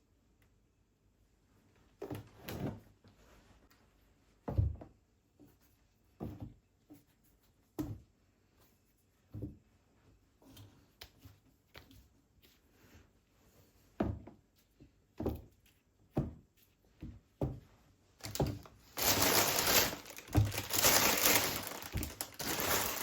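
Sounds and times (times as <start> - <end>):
objects knocking and thudding: 17.0 - 23.0.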